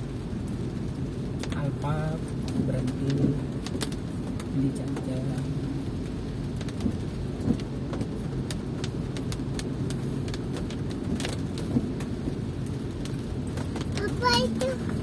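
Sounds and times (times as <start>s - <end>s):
steady rain: 0.0s - 15.0s
raindrops tapping: 0.5s - 15.0s.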